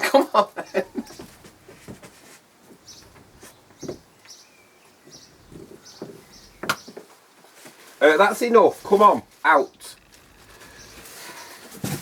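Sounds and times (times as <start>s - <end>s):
bird chirps: 0.6s - 1.6s, 2.8s - 7.0s.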